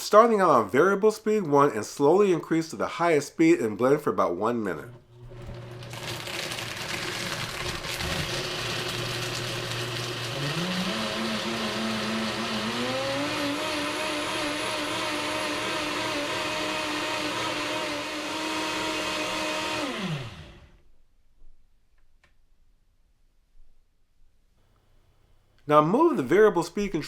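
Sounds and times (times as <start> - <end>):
blender motor whirring: 5.0 - 20.8.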